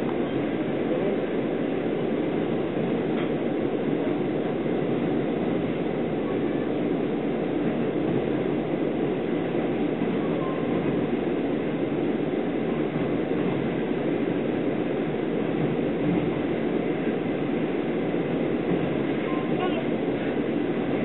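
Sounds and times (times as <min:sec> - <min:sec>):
train coach rumbling on rails: 0:00.0 - 0:21.0.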